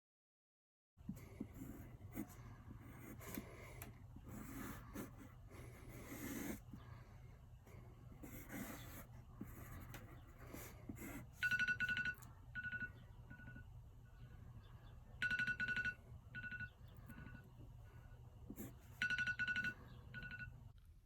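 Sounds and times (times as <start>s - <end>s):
drawing on paper: 1.1s - 12.2s, 18.5s - 19.6s
electronic timer beeping: 11.4s - 13.7s, 15.2s - 17.6s, 18.9s - 20.6s.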